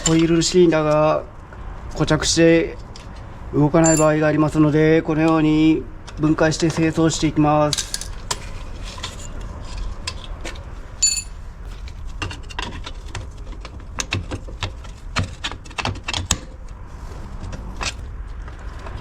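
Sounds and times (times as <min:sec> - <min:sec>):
metal parts clicking and knocking: 0:03.8 - 0:04.2, 0:07.7 - 0:11.4, 0:12.2 - 0:16.6.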